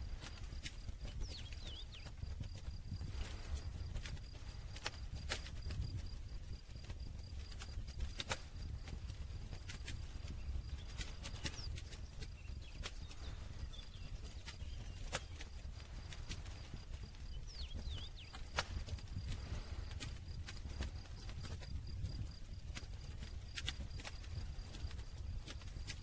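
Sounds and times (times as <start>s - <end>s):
campfire crackling: 0.0s - 26.0s
low rumble of flames: 0.0s - 26.0s.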